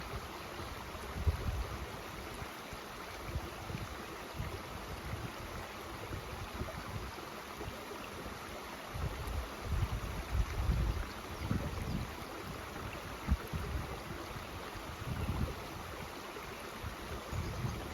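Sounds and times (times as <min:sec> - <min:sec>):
mountain stream flowing: 0:00.0 - 0:17.9
wind buffeting microphone: 0:09.0 - 0:16.0, 0:16.8 - 0:17.9.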